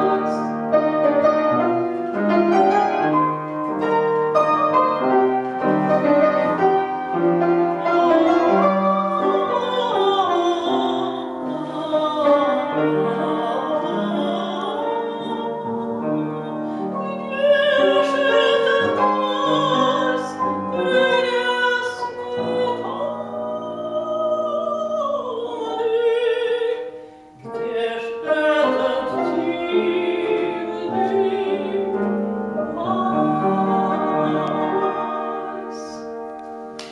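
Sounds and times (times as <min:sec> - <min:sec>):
piano accompaniment: 0:00.0 - 0:36.9
woman singing operatically: 0:07.8 - 0:26.9, 0:27.5 - 0:32.0, 0:32.6 - 0:36.0.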